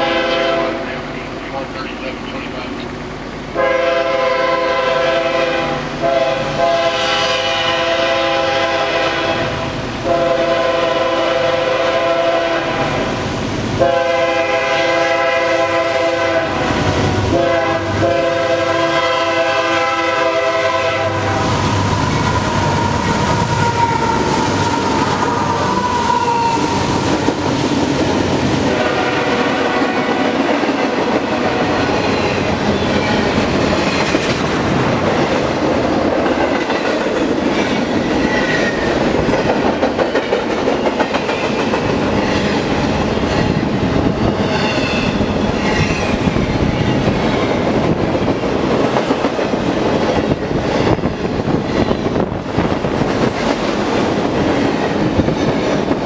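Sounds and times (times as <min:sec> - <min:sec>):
locomotive air horn blasts: 0:00.0 - 0:00.8, 0:03.6 - 0:13.1, 0:13.8 - 0:24.9, 0:28.7 - 0:30.2
train rumbling past: 0:00.0 - 0:56.0.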